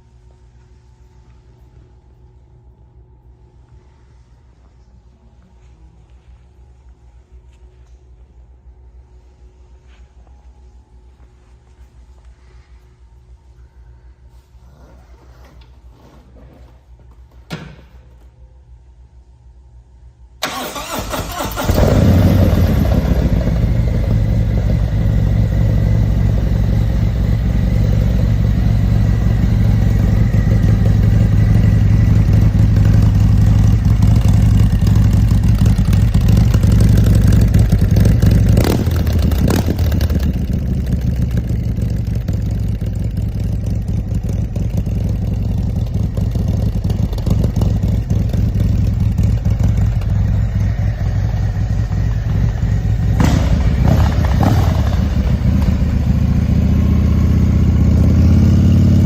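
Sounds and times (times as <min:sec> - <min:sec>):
motorcycle engine idling: 0:20.4 - 0:59.0.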